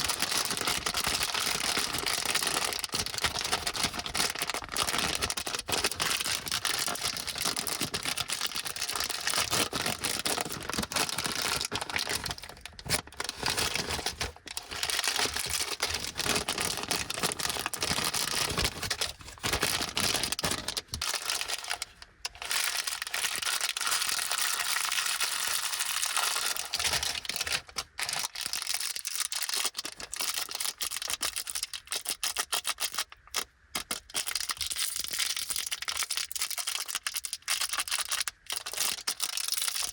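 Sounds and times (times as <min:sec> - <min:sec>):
plastic wrappers crinkling: 0:00.0 - 0:39.9.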